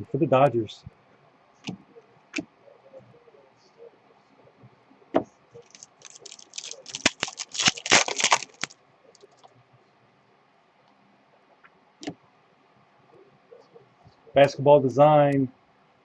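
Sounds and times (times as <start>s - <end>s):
wrapper crinkling and tearing: 5.6s - 8.8s.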